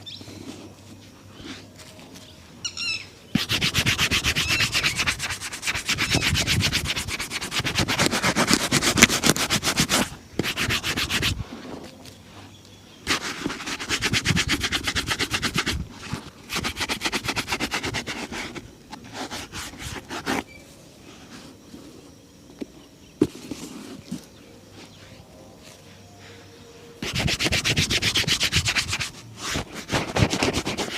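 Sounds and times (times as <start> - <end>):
shoe buffing strokes: 3.3 - 11.8, 13.1 - 20.5, 27.0 - 30.9.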